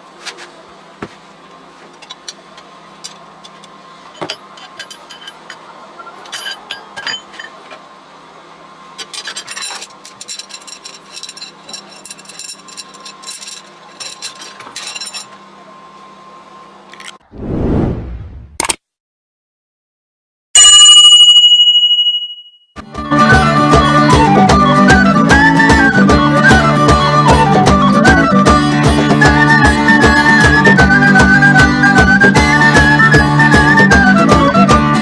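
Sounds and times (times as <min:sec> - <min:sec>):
small metal objects clinking: 0:09.1 - 0:15.3.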